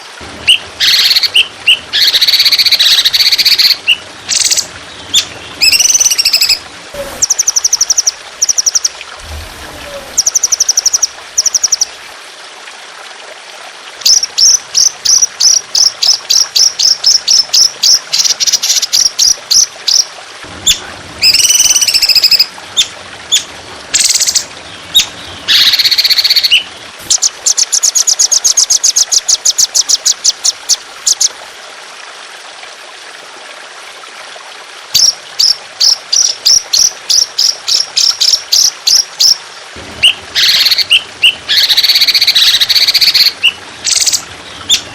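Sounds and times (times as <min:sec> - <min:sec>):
water trickling: 0:00.0 - 0:44.9
bird harsh rasping calls: 0:00.5 - 0:08.0, 0:40.0 - 0:44.8
songbird singing: 0:00.5 - 0:12.0, 0:20.7 - 0:31.3, 0:40.0 - 0:44.9.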